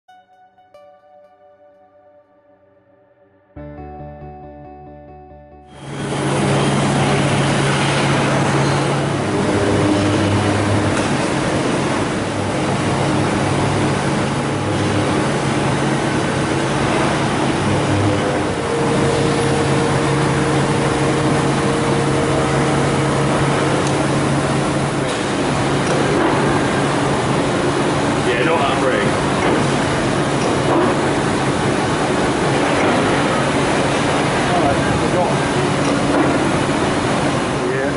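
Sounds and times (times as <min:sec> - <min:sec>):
higher hum: 0:00.1 - 0:30.2
lathe droning: 0:05.8 - 0:37.6.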